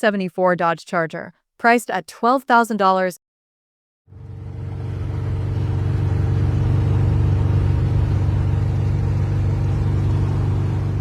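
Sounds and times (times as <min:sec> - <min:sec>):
car engine running: 0:04.1 - 0:11.0.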